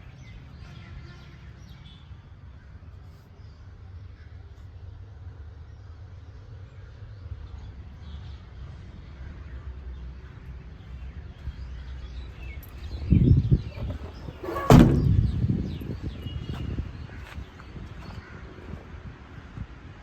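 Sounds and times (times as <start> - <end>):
dull thud: 13.8 - 15.4.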